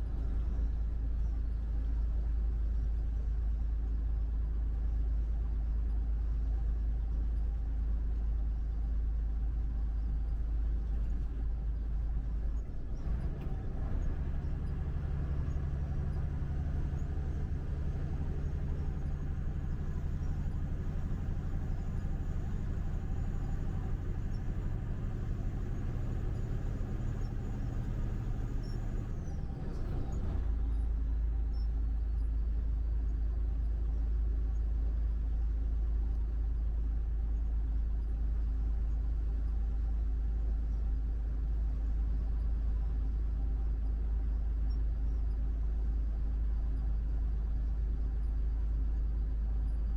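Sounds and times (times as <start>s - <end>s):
truck engine rumble: 0.0s - 1.8s, 10.6s - 32.2s
road noise: 12.7s - 30.7s.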